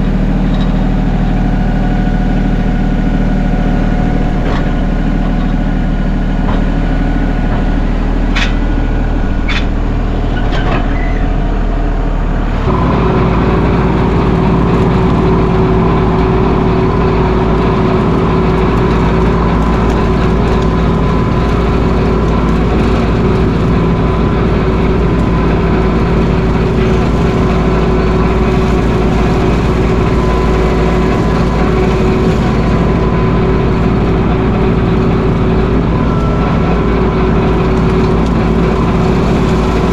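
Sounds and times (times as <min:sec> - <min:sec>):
tractor diesel engine running: 0:00.0 - 0:39.9
short clanks: 0:06.4 - 0:11.4.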